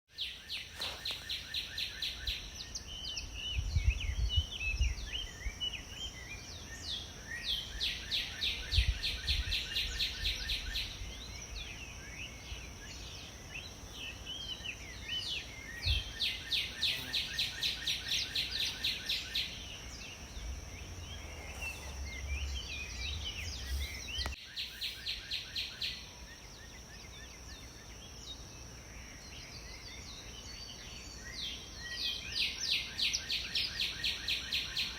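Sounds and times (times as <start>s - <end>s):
songbirds singing: 0.1s - 34.9s
wind rumble on microphone: 3.0s - 5.8s, 8.5s - 11.7s, 15.8s - 16.2s.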